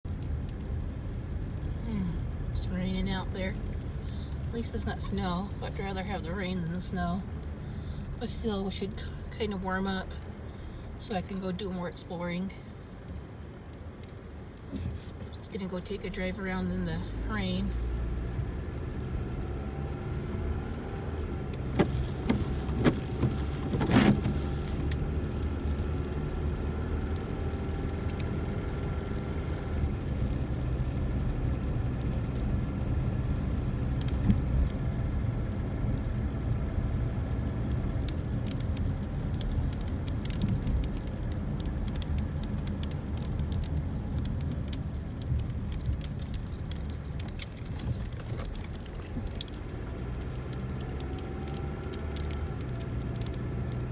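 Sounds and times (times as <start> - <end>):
car engine and road rumble: 0.0 - 53.9
small clicks and rattles: 37.5 - 53.9.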